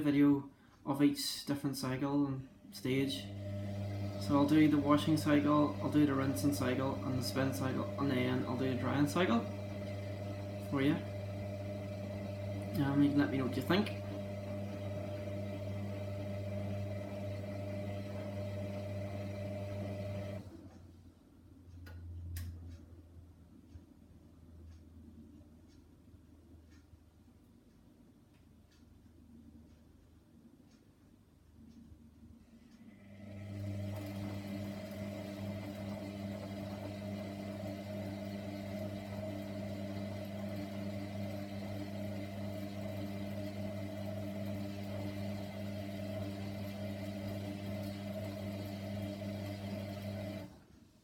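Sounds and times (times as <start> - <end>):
washer drum motor humming: 2.9 - 20.8, 32.9 - 50.6.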